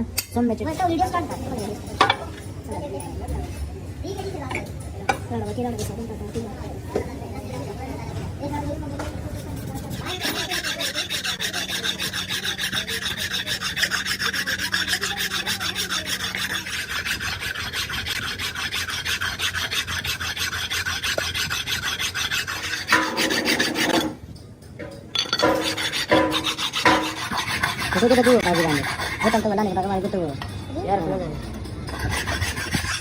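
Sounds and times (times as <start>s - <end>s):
hand tool rasping on metal: 9.8s - 24.2s, 25.2s - 33.0s.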